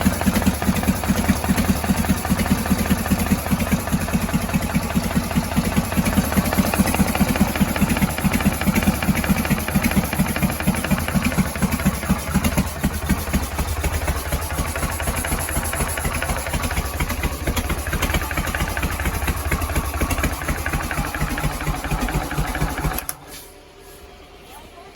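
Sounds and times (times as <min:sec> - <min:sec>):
motorcycle engine idling: 0:00.0 - 0:23.3.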